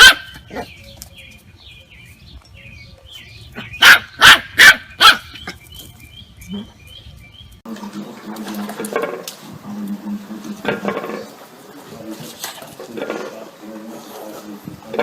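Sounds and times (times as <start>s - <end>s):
dog barking: 0.0s - 0.7s, 3.6s - 5.3s
small birds chirping: 0.3s - 7.7s.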